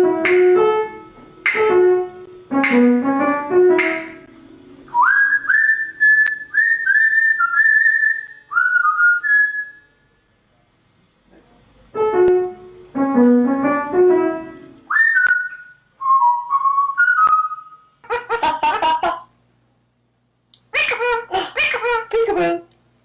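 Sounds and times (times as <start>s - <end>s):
keyboard-like melody: 0.0s - 4.2s
pet bird whistling: 4.9s - 9.9s, 14.9s - 17.9s.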